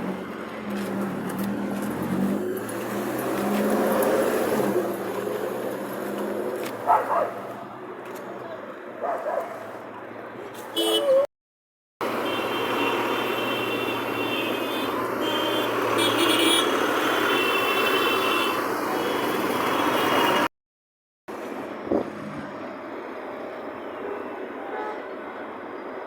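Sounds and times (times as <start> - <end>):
street and vehicle noise: 0.0 - 11.3, 12.0 - 20.5, 21.3 - 26.0.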